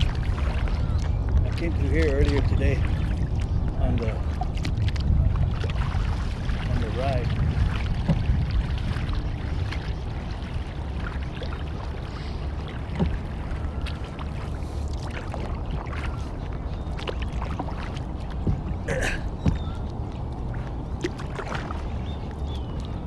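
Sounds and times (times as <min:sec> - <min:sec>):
paddle splashing water: 0:00.0 - 0:23.0
wind rumble on microphone: 0:00.0 - 0:23.0
small knocks on kayak: 0:08.0 - 0:08.4, 0:12.9 - 0:13.2, 0:18.4 - 0:18.8, 0:19.4 - 0:19.8.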